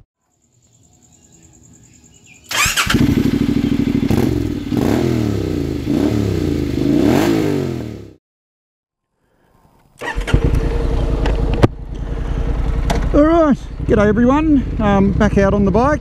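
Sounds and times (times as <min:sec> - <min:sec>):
motorcycle engine revving: 0:02.4 - 0:08.2, 0:10.0 - 0:16.0.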